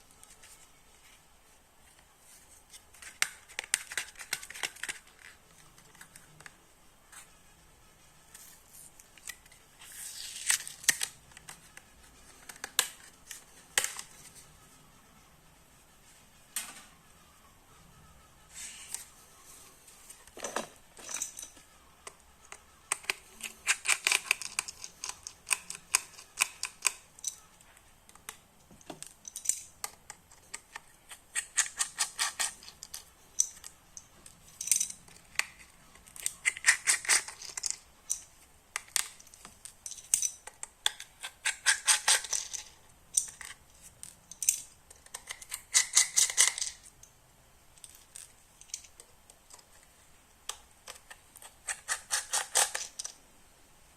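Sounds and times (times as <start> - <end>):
packaging clicks and snaps: 2.9 - 6.5, 10.2 - 14.1, 22.5 - 27.5.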